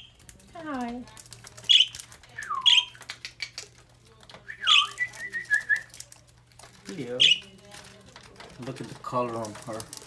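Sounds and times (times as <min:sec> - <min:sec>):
parakeets squawking: 0:01.7 - 0:02.0, 0:04.6 - 0:05.1, 0:07.1 - 0:07.5.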